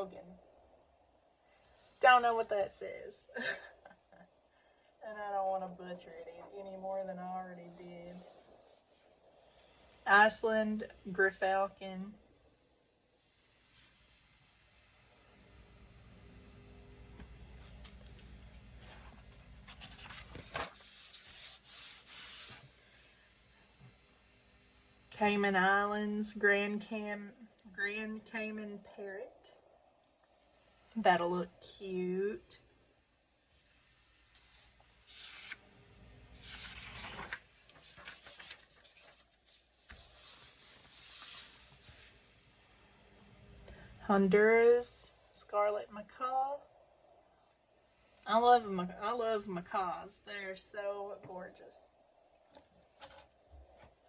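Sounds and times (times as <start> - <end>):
paper pages rustling: 17.6 - 22.7, 34.3 - 35.6, 36.3 - 42.2.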